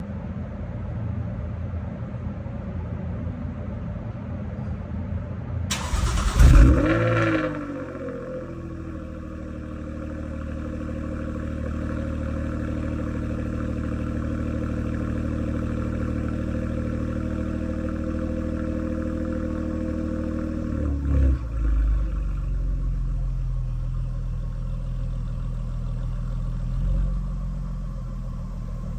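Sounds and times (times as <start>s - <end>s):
car engine revving and idling: 5.7s - 28.9s.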